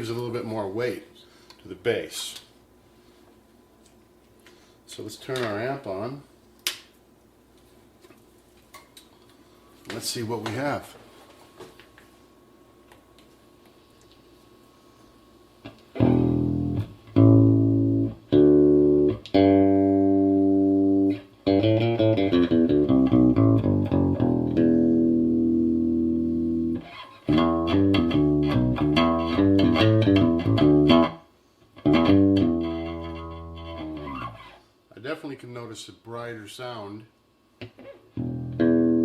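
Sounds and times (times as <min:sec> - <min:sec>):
electric bass guitar: 0:15.9 - 0:31.2, 0:31.8 - 0:34.4, 0:37.7 - 0:39.0.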